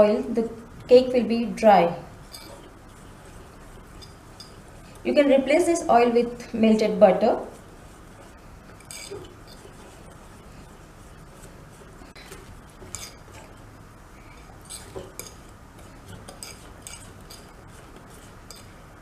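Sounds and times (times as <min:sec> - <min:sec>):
utensil stirring batter in bowl: 0:00.0 - 0:19.0.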